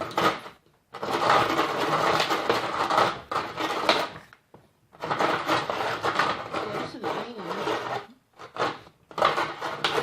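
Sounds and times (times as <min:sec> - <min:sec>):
blade grinding ice: 0:00.0 - 0:04.2, 0:04.9 - 0:10.0.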